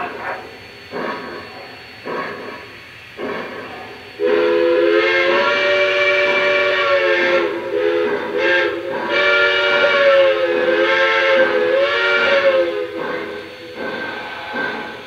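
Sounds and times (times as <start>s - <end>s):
electronic steam whistle blowing: 4.2s - 15.0s.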